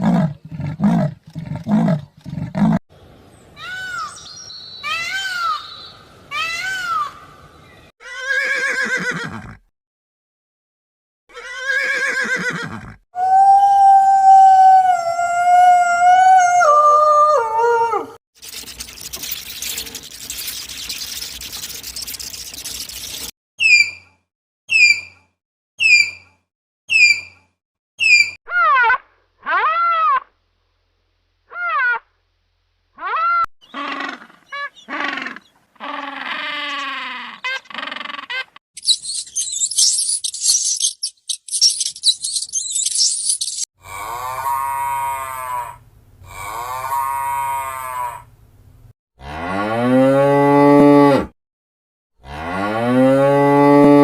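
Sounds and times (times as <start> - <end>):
insect-like chirping: 18.4 - 23.3, 38.8 - 43.6
animal squawking: 33.0 - 40.6
cow mooing: 43.8 - 48.2.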